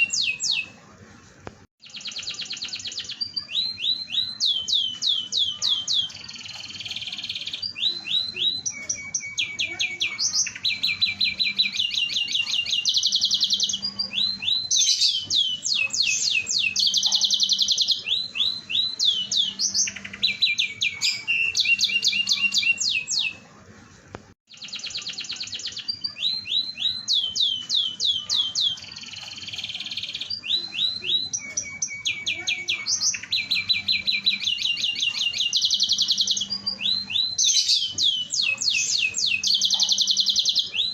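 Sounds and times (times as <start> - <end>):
canary singing rapid trills: 0.0 - 0.8, 1.8 - 23.4, 24.5 - 40.9.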